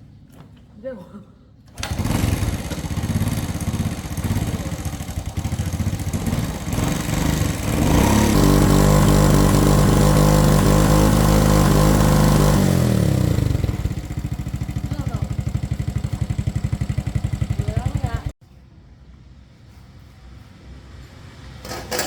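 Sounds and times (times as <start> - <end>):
motorcycle engine idling and revving: 1.8 - 18.4.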